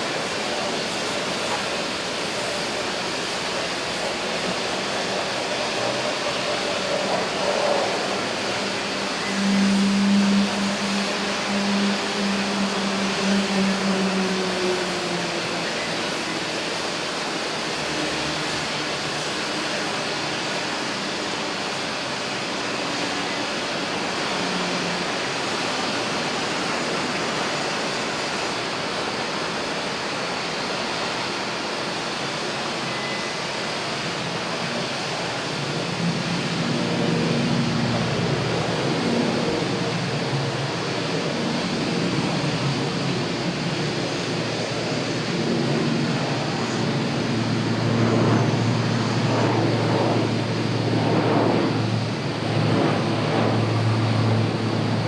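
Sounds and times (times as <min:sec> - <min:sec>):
aircraft engines rushing: 0:00.0 - 0:55.0
wavering engine tones: 0:06.4 - 0:18.9, 0:36.0 - 0:55.0.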